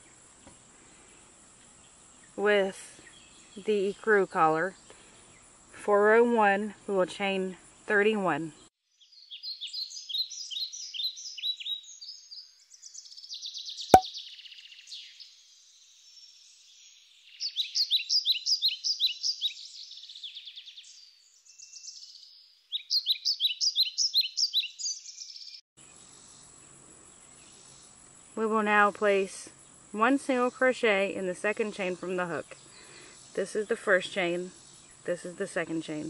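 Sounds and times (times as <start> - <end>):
songbird chirping: 0.5 - 5.5, 8.5 - 28.8.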